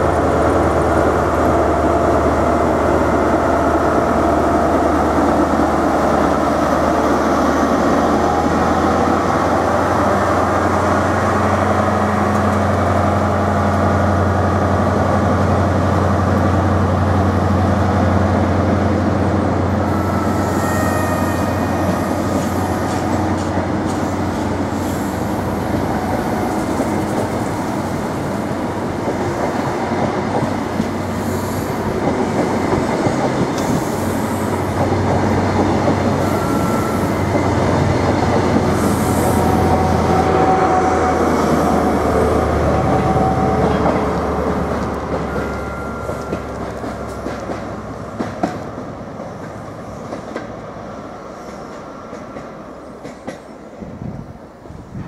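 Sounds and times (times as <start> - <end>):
train wheels clattering over rail joints: 43.6 - 48.7.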